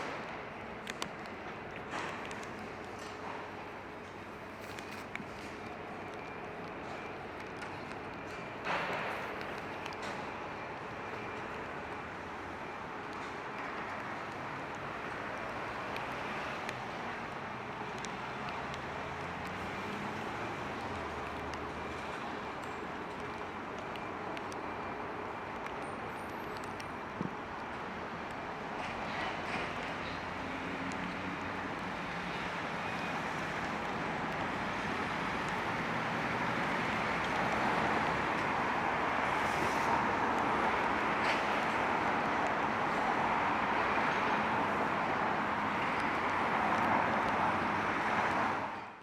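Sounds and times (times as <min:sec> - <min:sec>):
traffic on wet roads: 0:00.0 - 0:49.0
tyres hissing on wet road: 0:28.8 - 0:48.8.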